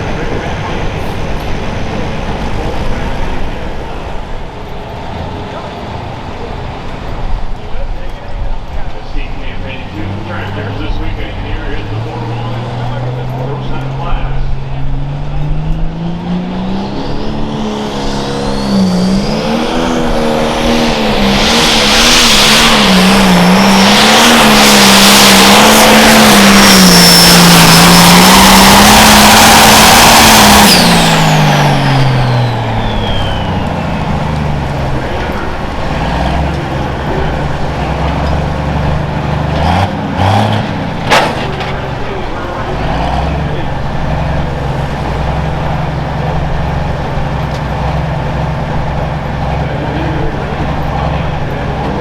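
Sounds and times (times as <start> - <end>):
diesel engine at full throttle: 0.0 - 52.0
turbo whistle: 32.2 - 34.3
sharp engine pops: 41.0 - 41.9.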